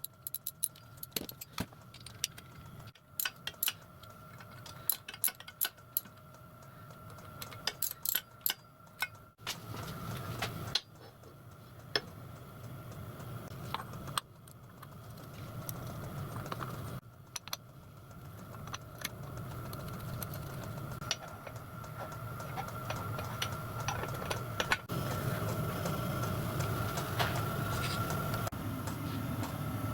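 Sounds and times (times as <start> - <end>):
sharp metallic ticks and taps: 0.0 - 9.4, 10.7 - 24.9
metalworking machine humming: 12.9 - 29.9.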